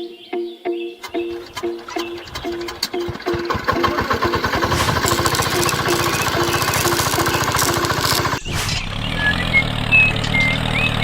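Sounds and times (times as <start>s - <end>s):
low engine hum: 1.0s - 11.0s
small engine running fast: 1.0s - 11.0s.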